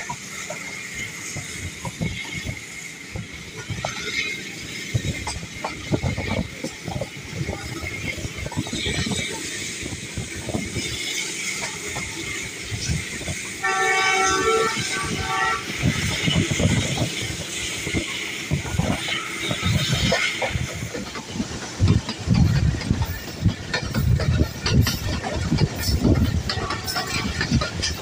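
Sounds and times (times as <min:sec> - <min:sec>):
train wheels clattering on rails: 0:00.0 - 0:28.0
locomotive horn blast: 0:13.6 - 0:15.9.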